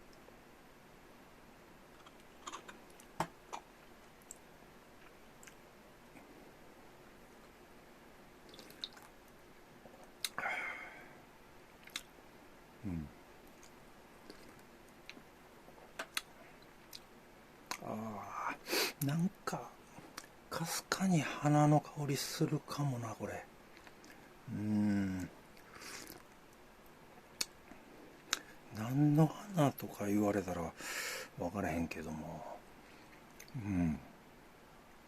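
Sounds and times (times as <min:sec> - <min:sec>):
quiet chewing: 0:01.9 - 0:06.4, 0:08.4 - 0:10.4, 0:11.8 - 0:12.1, 0:13.4 - 0:17.1, 0:23.7 - 0:24.3, 0:25.0 - 0:28.6.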